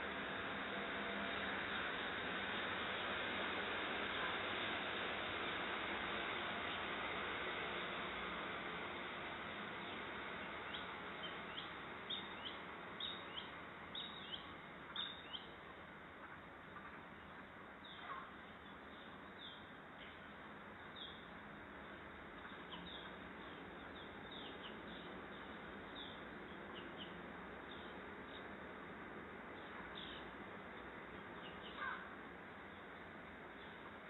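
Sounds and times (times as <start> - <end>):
steady background hiss: 0.0 - 34.0
birds chirping: 9.7 - 15.6, 16.2 - 28.6, 29.5 - 30.4, 31.1 - 34.0.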